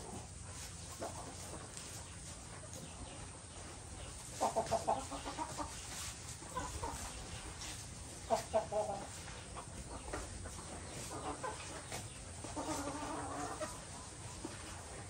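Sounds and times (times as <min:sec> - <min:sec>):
chicken clucking: 0:00.0 - 0:15.0.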